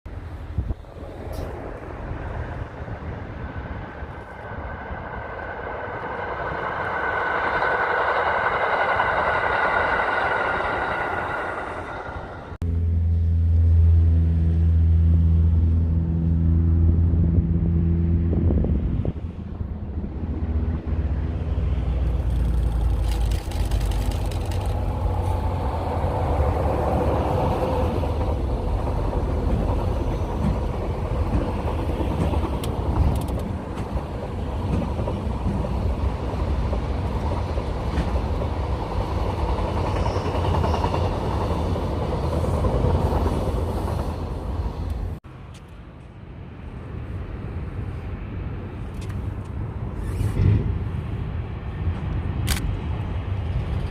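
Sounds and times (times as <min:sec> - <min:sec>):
train wheels rumbling on rails: 0:00.1 - 0:12.8, 0:18.5 - 0:53.9
faint whine: 0:01.1 - 0:13.2.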